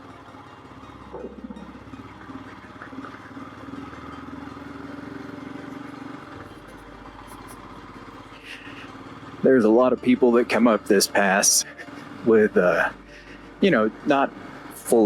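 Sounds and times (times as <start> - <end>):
motorcycle engine at low revs: 0.0 - 15.0.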